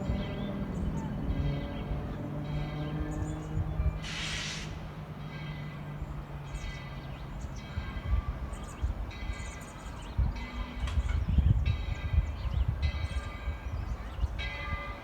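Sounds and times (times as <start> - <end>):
steam hiss: 4.0 - 4.8.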